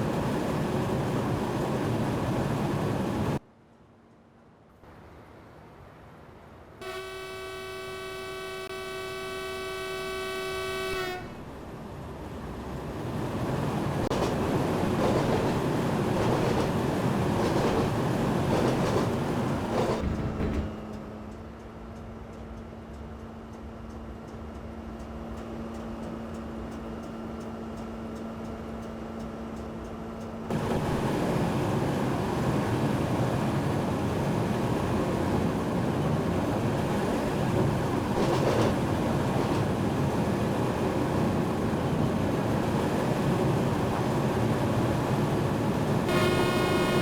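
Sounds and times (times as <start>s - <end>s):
low steady hum: 0.0s - 12.5s, 45.6s - 47.0s
train running noise: 0.0s - 47.0s
train horn blast: 6.8s - 11.5s, 46.1s - 47.0s
rail clatter: 13.0s - 21.4s, 30.5s - 46.2s.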